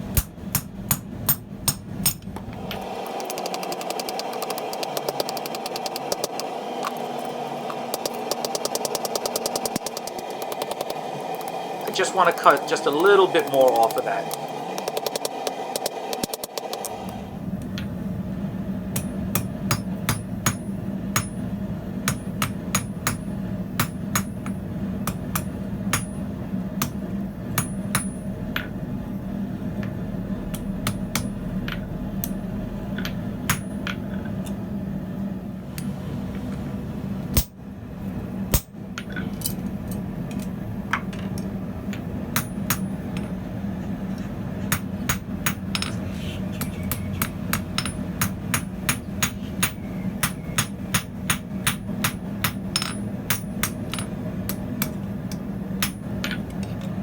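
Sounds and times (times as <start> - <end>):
steady low hum: 0.0 - 57.0
hammer striking steel on anvil: 0.1 - 2.3, 18.9 - 26.2, 27.6 - 28.7, 30.5 - 32.4, 33.0 - 34.0, 42.3 - 43.4, 44.7 - 46.0, 46.6 - 55.0, 55.8 - 56.4.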